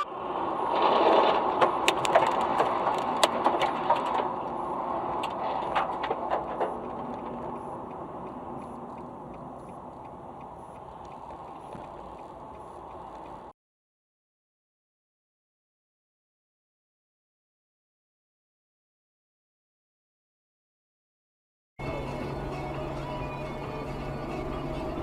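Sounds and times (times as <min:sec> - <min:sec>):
car cabin road noise: 0:00.0 - 0:13.5, 0:21.8 - 0:25.0
sharp clicks and knocks: 0:01.2 - 0:13.5
faint regular ticking: 0:04.5 - 0:13.5.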